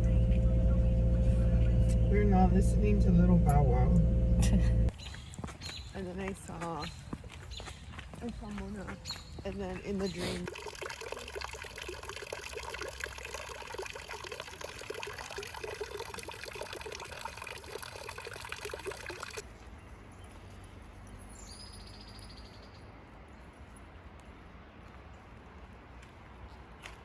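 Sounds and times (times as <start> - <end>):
water running and trickling: 9.6 - 19.4.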